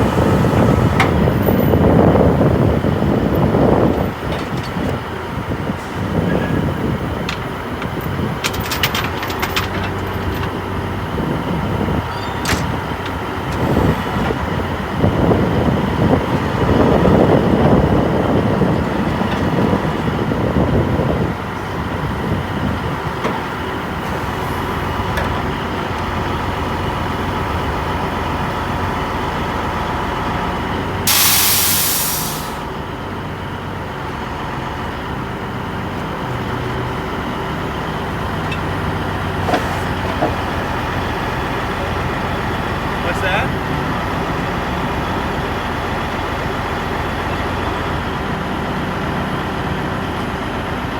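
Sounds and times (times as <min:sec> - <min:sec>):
truck engine running: 0:00.0 - 0:50.9
air brakes hissing: 0:31.0 - 0:32.7.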